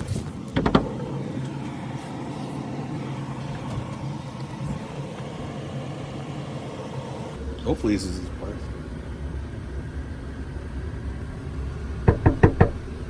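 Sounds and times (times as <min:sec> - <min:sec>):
car engine humming: 0:00.0 - 0:13.0
sharp knocks: 0:00.6 - 0:01.0, 0:12.1 - 0:12.8.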